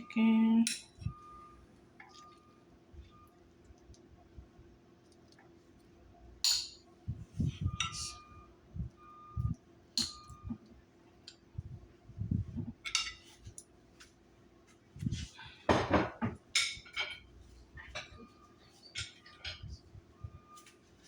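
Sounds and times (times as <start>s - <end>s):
dishes and utensils clinking: 6.4s - 6.8s, 10.0s - 10.4s, 12.8s - 13.6s, 15.7s - 19.7s.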